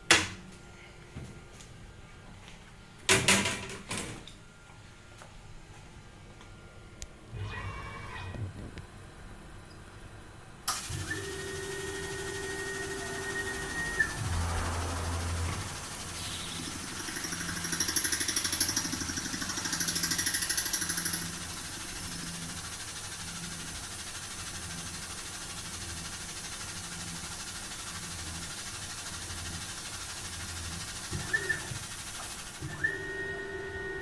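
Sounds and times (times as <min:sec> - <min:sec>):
machine spindle running: 0:10.7 - 0:34.0.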